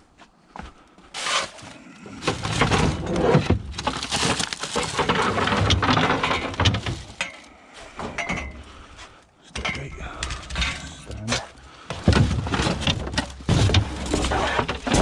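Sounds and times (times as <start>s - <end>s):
suitcase rustling and scraping: 1.1s - 8.2s, 10.6s - 15.0s.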